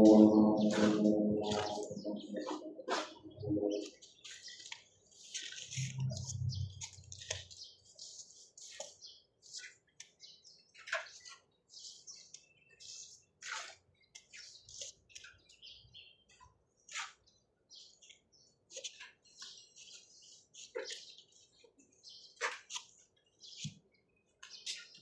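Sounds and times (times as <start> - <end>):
sharp bird calls: 0.0 - 23.8
small birds chirping: 0.0 - 25.0.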